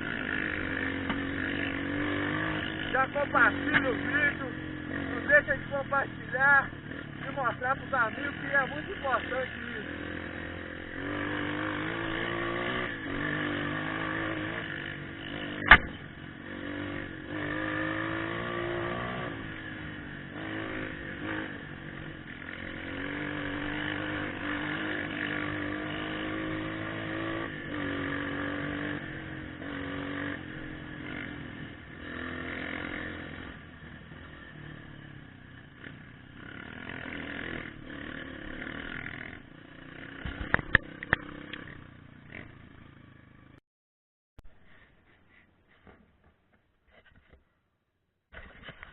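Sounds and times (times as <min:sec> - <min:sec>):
motorcycle engine running: 0:00.0 - 0:43.6
sharp knock: 0:15.6 - 0:16.0.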